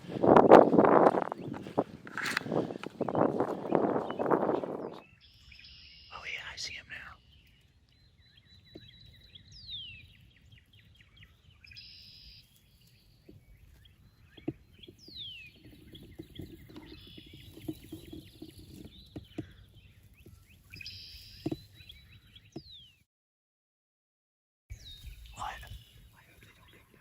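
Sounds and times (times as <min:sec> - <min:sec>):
low wind rumble: 0:00.0 - 0:05.6.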